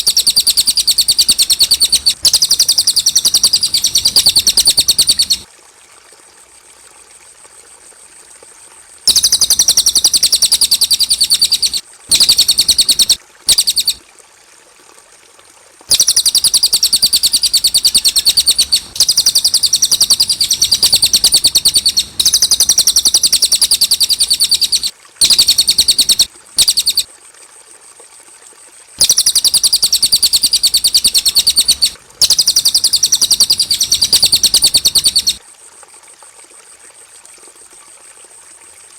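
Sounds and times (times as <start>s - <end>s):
bird chattering trills: 0.0s - 5.4s, 9.1s - 14.0s, 15.9s - 27.0s, 29.0s - 35.4s.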